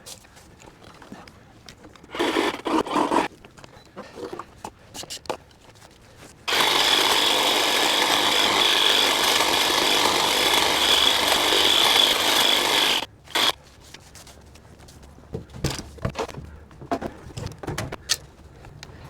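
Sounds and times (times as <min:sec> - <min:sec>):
handheld power tool running: 0:02.2 - 0:03.3, 0:06.5 - 0:13.6.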